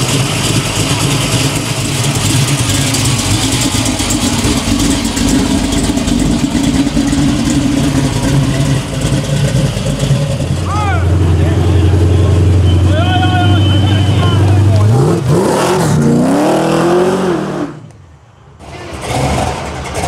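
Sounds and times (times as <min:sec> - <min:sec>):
car engine running at low revs: 0:00.0 - 0:16.0.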